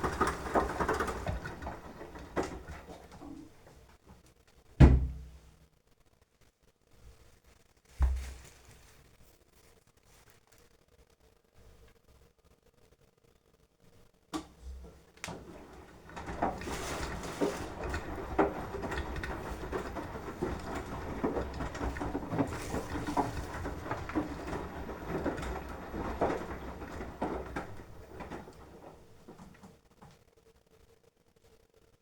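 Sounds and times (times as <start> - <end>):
washing machine drum turning: 0.0 - 3.9, 14.4 - 29.8
wet laundry tumbling and splashing: 0.0 - 3.9, 14.6 - 29.8
washing machine clicks: 14.4 - 29.8.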